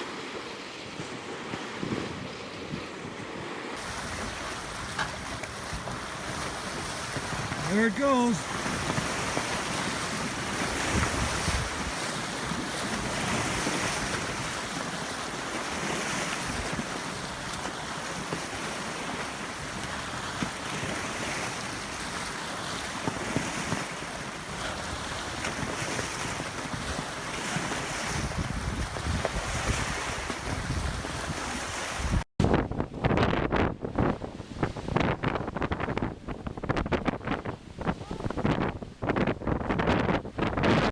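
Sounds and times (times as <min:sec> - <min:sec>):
strong storm wind: 0:00.0 - 0:22.3, 0:24.6 - 0:40.9
waves breaking on shore: 0:00.0 - 0:32.3
wind buffeting microphone: 0:00.8 - 0:40.9.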